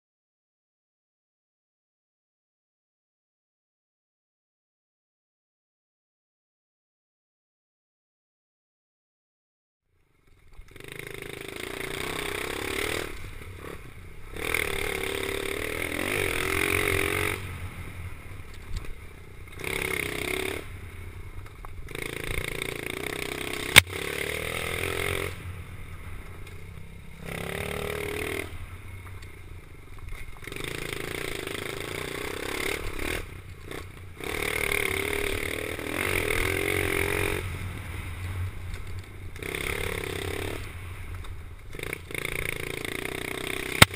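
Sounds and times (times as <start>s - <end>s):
motorbike engine revving: 10.6s - 29.6s, 30.2s - 43.9s
sharp click: 23.7s - 24.0s.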